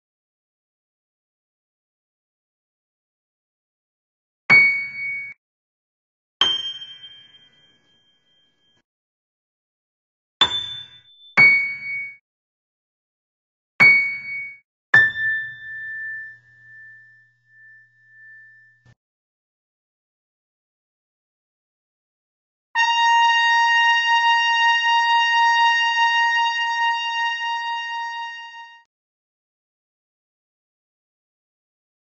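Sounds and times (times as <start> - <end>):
struck metallic bell notes: 6.4 - 8.4, 10.5 - 12.2, 14.1 - 18.9.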